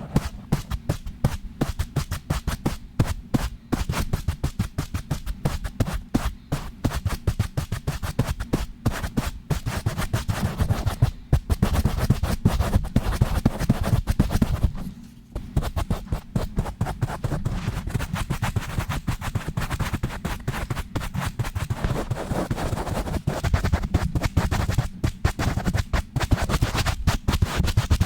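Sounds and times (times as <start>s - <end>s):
scratching and brushing on microphone: 0.0s - 2.6s, 7.0s - 28.0s.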